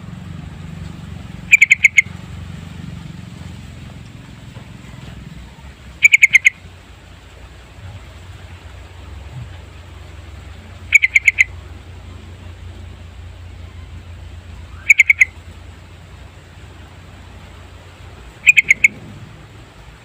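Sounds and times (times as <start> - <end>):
steady low hum: 0.0 - 20.0
bulbul singing: 1.3 - 2.3, 5.4 - 6.7, 10.4 - 19.8.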